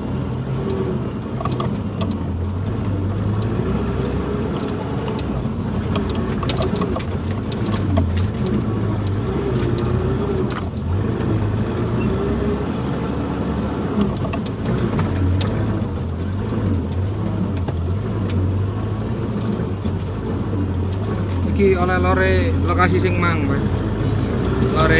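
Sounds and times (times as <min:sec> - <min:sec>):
car engine running at low speed: 0:00.0 - 0:24.9
sharp clicks and knocks: 0:01.1 - 0:12.0, 0:13.9 - 0:21.6.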